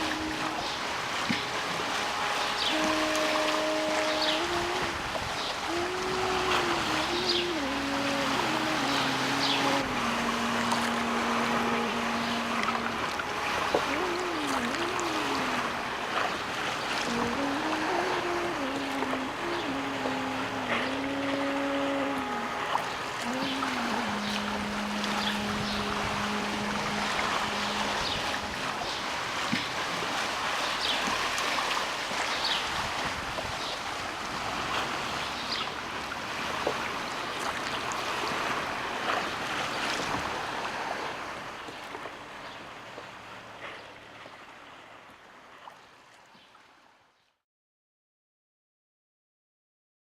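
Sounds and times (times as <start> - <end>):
low hum: 0.0 - 29.4
wind on microphone: 0.0 - 42.2
sea water splashing: 0.0 - 46.9.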